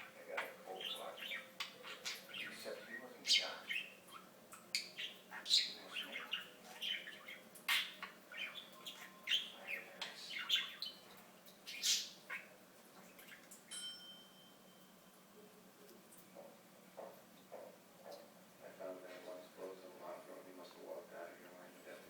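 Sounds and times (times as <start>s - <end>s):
budgerigar chirping and squawking: 0.0s - 12.6s.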